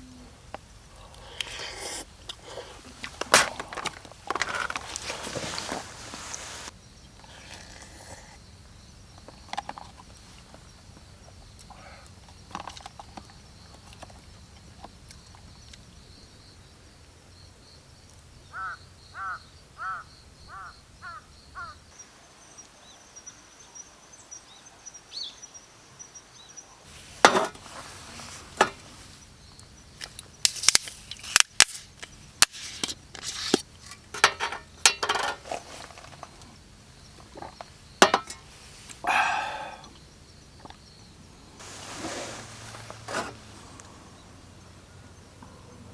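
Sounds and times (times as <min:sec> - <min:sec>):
bird calling: 0:02.3 - 0:06.7, 0:18.5 - 0:21.8, 0:37.0 - 0:40.0
dry wood cracking and snapping: 0:30.0 - 0:32.6
high insect drone: 0:34.1 - 0:45.9.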